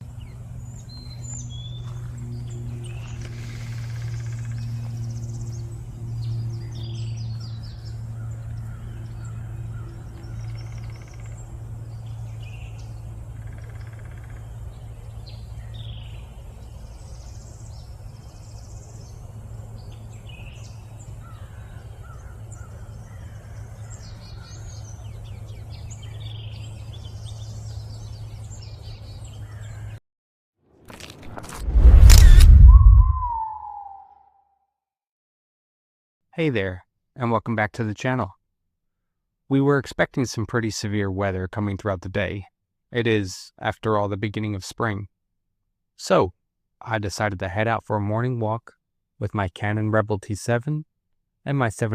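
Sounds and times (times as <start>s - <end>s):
wild birds chirping and trilling: 0.0s - 30.0s.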